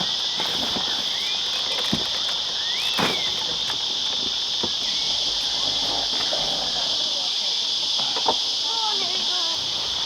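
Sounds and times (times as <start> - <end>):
insects buzzing: 0.0 - 10.0
rising and falling whistles: 2.5 - 3.4, 4.8 - 5.6.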